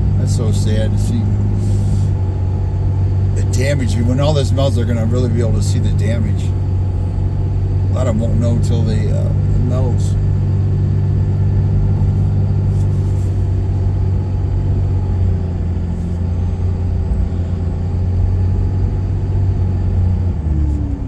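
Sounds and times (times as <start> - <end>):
truck engine and tyre drone: 0.0 - 21.0.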